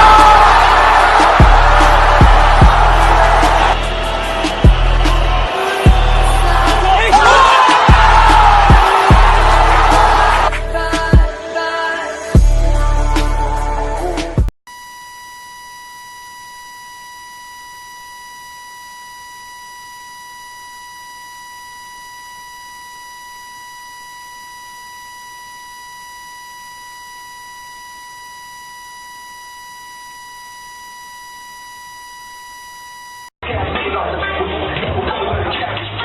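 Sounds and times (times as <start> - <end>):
continuous electronic beep: 14.7 - 33.3.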